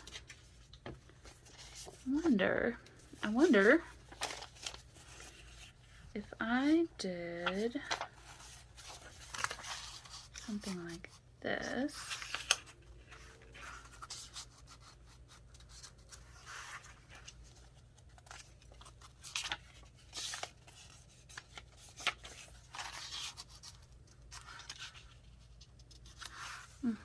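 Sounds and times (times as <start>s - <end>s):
soft paper scrapes and rubs: 0.0s - 6.8s, 7.4s - 27.0s
paper rustling and sliding: 3.6s - 6.0s, 7.4s - 10.7s.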